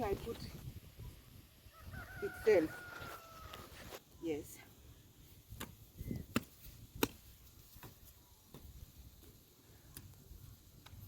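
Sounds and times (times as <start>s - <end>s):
hoe striking stony soil: 5.5s - 10.1s.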